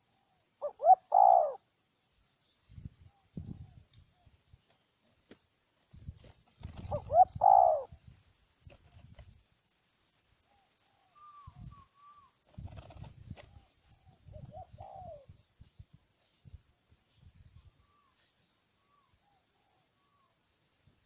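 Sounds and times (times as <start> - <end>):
dove cooing: 0.6 - 1.6, 6.6 - 7.9, 14.3 - 15.3.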